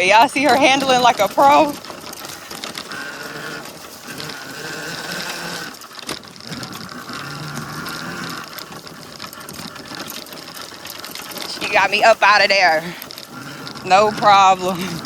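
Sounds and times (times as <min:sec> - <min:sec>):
electric motor whining: 0:00.0 - 0:15.0
rough trail rumble: 0:00.0 - 0:15.0.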